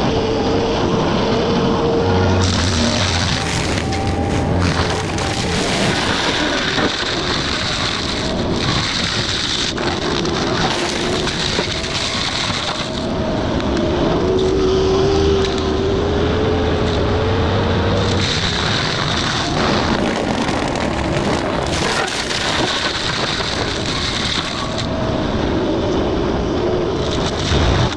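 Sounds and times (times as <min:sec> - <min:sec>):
mulcher whine: 0:00.0 - 0:27.9
diesel engine under load: 0:00.7 - 0:08.6.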